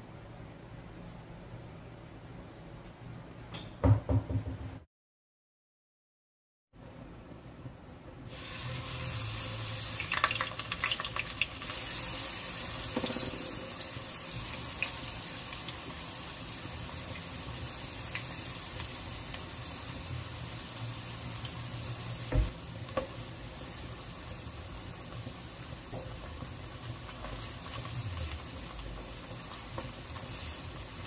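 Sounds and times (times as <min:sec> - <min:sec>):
leaves sizzling in hot oil: 0:08.3 - 0:31.0
oil crackling and popping: 0:10.0 - 0:12.1.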